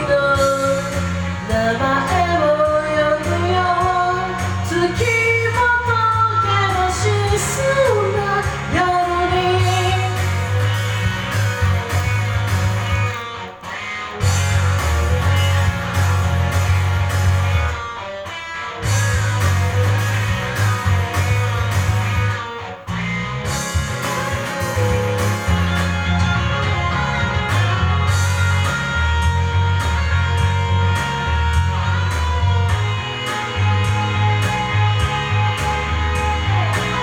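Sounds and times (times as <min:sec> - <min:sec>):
bass: 0:00.0 - 0:37.0
drums: 0:00.0 - 0:37.0
electric guitars: 0:00.0 - 0:37.0.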